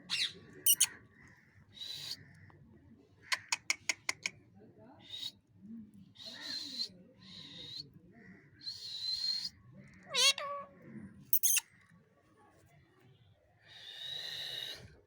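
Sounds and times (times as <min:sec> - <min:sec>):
parrot screeching and squawking: 0:00.1 - 0:00.9, 0:10.1 - 0:10.6, 0:11.3 - 0:11.6.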